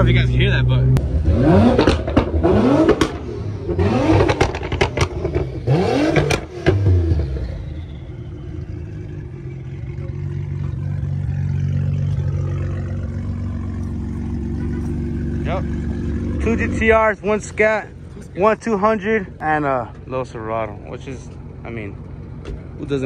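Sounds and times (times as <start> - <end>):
car engine revving: 0.0 - 23.0
exhaust cracks: 0.0 - 23.0.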